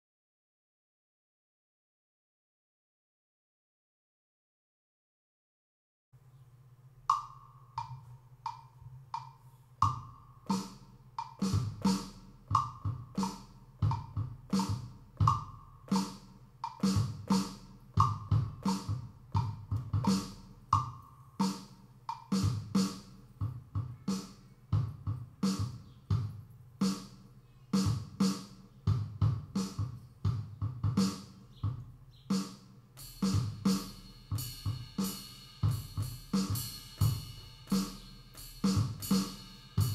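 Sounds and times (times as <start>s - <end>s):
drum-machine beat: 7.1s - 27.2s, 27.8s - 39.9s
fast hi-hat ticks: 33.0s - 39.9s.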